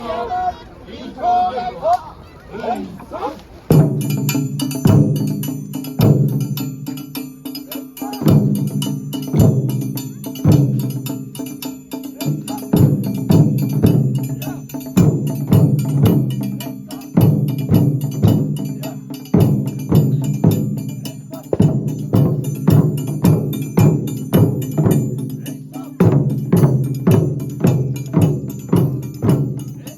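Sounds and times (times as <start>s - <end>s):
deep drum strokes: 3.7s - 7.0s, 12.2s - 29.9s
sharp high drum strikes: 3.7s - 29.9s
fast lighter drum hits: 21.5s - 22.8s.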